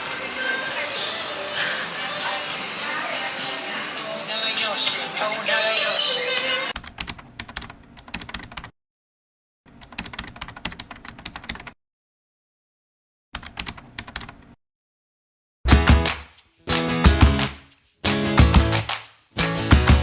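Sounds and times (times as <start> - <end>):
intro music: 15.7 - 20.0.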